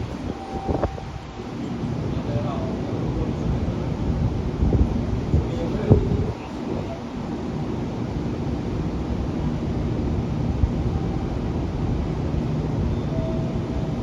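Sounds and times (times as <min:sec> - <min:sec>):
electric trains humming: 0:00.0 - 0:14.0
wind on microphone: 0:04.1 - 0:07.1.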